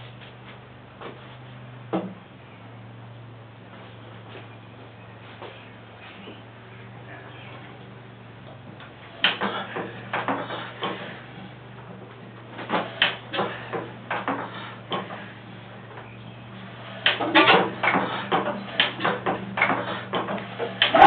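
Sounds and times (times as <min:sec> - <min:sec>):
low hum: 0:00.0 - 0:21.0
metallic clanks from hand-cranking: 0:17.0 - 0:21.0.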